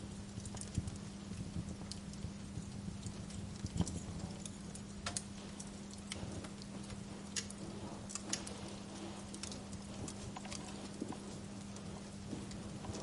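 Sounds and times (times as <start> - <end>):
soft rumble: 0.0 - 13.0
steady low hum: 0.0 - 13.0
wood fire crackling and popping: 0.0 - 13.0.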